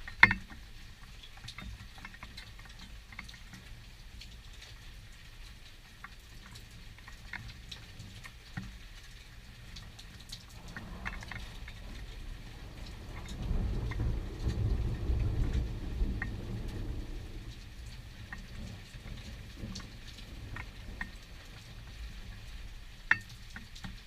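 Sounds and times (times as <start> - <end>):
rain pattering: 0.0 - 24.0
water drips: 0.0 - 24.0
deep thunder rumble: 10.4 - 22.8.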